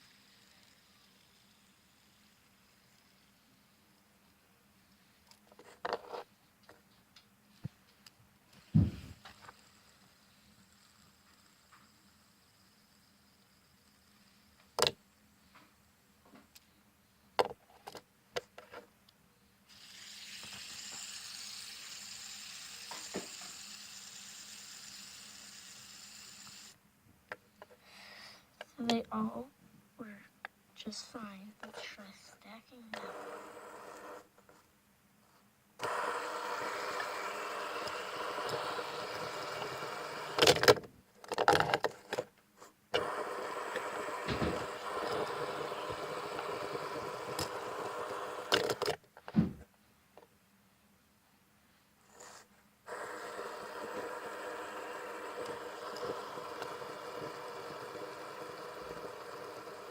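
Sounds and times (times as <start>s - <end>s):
fidget spinner bearing whirring: 0.0s - 6.8s, 8.0s - 15.9s, 19.7s - 26.8s, 32.9s - 34.6s, 35.8s - 42.2s, 42.9s - 49.0s, 52.1s - 59.9s.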